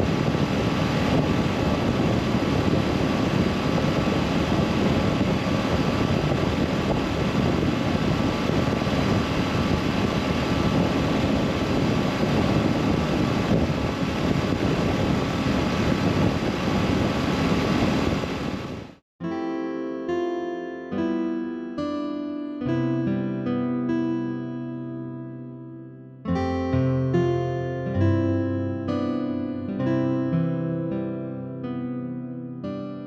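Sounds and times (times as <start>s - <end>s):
road and wind noise: 0.0s - 19.0s.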